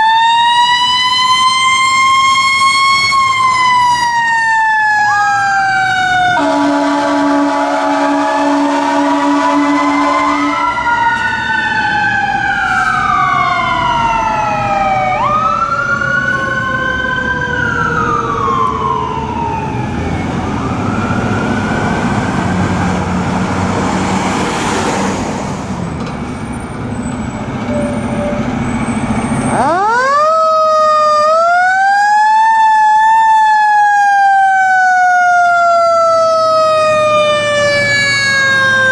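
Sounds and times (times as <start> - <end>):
truck engine: 0.0 - 31.6, 33.6 - 38.9
fire truck sirens wailing: 0.0 - 38.9
road noise: 0.0 - 38.9
air horn blast: 6.4 - 10.9.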